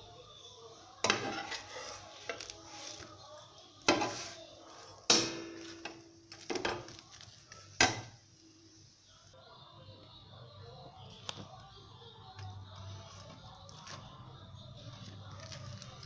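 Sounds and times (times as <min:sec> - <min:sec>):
kitchen utensils clattering: 0:01.0 - 0:03.0, 0:03.9 - 0:04.4, 0:07.7 - 0:08.2.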